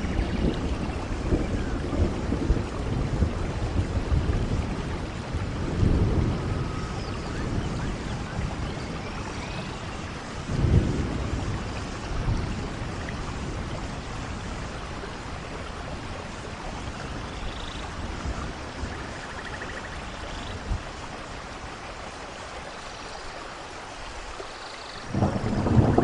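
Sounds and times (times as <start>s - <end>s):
rolling thunder: 0.0s - 16.1s, 25.1s - 26.0s
rain on foliage: 0.0s - 26.0s.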